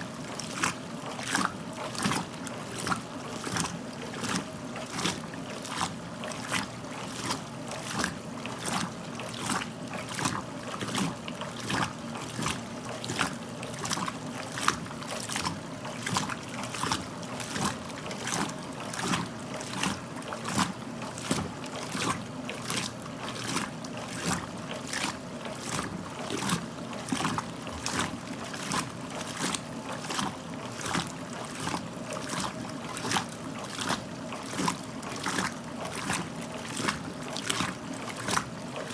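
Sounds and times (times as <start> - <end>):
washing machine motor hum: 0.0 - 38.9
water and clothes swishing: 0.0 - 38.9.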